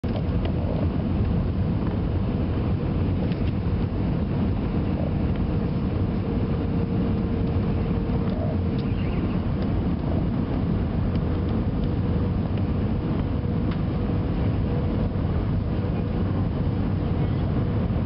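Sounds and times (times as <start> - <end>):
airliner cabin engine rumble: 0.0 - 18.0
faint steady hum: 0.0 - 18.0.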